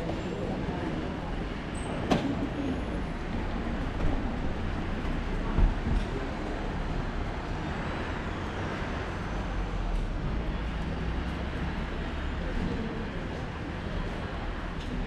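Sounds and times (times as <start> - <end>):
wet road noise: 0.1 - 15.0.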